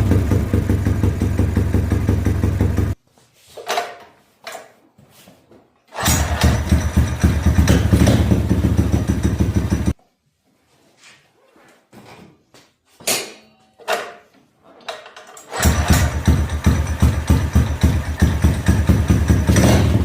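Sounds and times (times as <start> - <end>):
mini bike engine running: 0.0 - 3.0, 6.0 - 9.9, 15.5 - 20.0.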